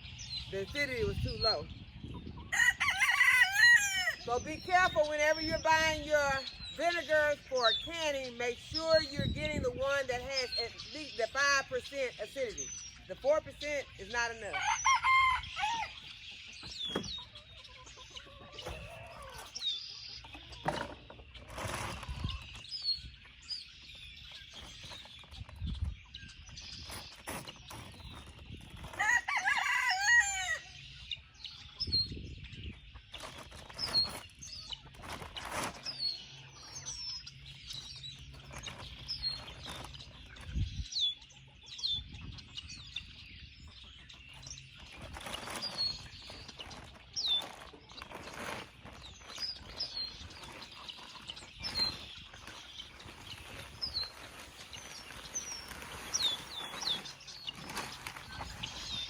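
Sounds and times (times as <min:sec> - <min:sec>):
rooster crowing: 0:02.5 - 0:04.2, 0:14.5 - 0:16.0, 0:29.0 - 0:30.7.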